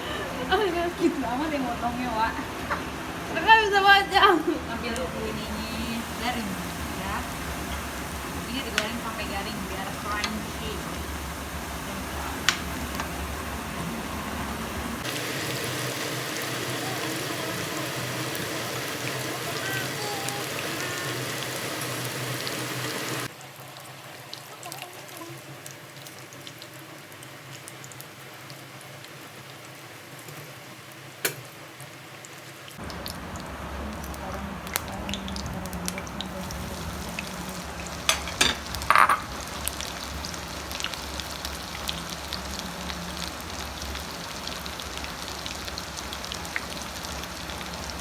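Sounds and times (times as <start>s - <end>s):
food sizzling in hot oil: 0.0s - 48.0s.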